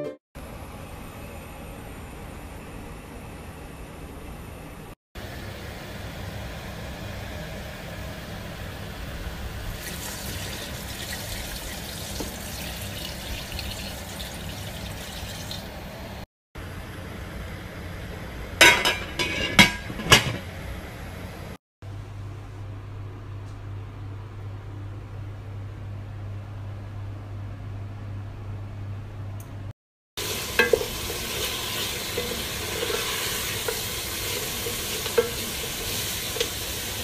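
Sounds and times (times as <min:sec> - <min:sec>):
water pouring into a pot: 0:09.8 - 0:15.7, 0:30.2 - 0:37.0.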